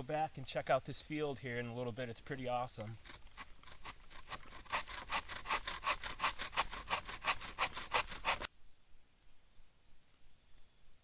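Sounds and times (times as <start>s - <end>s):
hand saw cutting wood: 2.8s - 8.5s.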